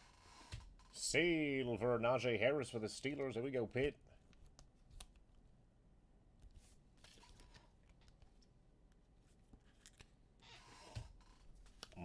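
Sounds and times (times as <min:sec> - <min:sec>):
light clicks of card wrappers: 0:06.4 - 0:10.2.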